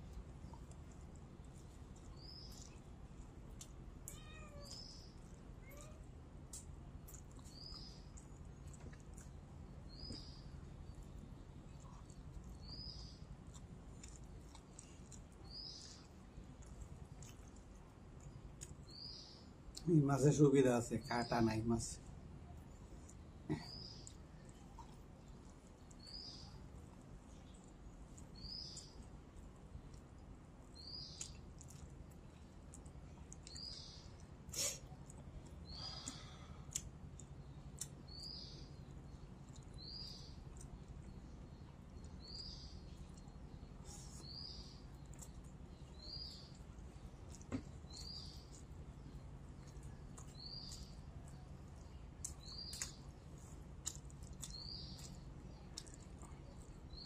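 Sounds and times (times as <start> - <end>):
low steady hum: 0.0 - 57.0
bird chirping: 2.0 - 2.9, 4.1 - 5.9, 7.1 - 8.3, 9.2 - 13.3, 14.0 - 16.1, 27.4 - 29.1, 30.8 - 31.4, 37.2 - 57.0.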